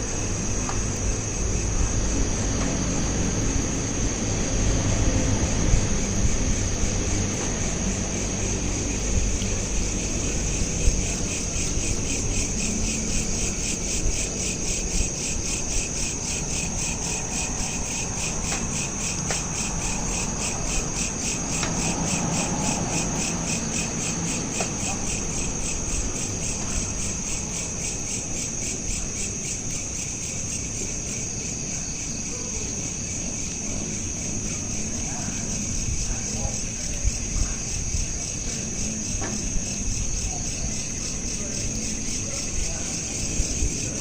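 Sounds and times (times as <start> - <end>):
crickets chirping: 0.0 - 44.0.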